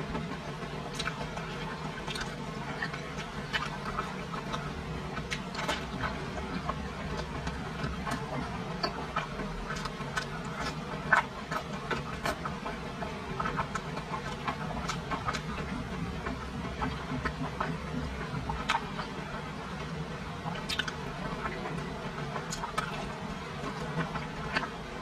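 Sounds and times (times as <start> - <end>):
steady low hum: 0.0 - 25.0
wet chewing and mouth smacks: 0.9 - 19.2, 20.4 - 21.8, 22.4 - 24.8.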